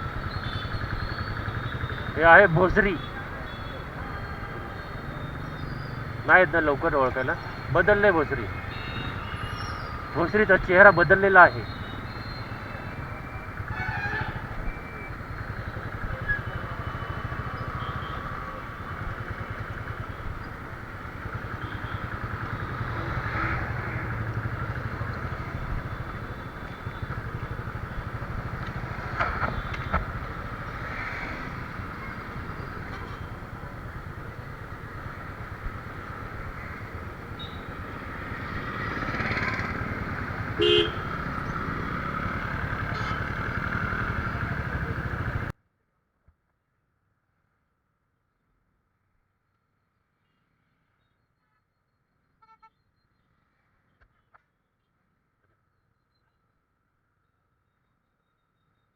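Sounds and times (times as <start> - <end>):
horn toot: 0.0 - 45.5
motorcycle engine running: 0.0 - 45.5
road and traffic noise: 0.0 - 45.6.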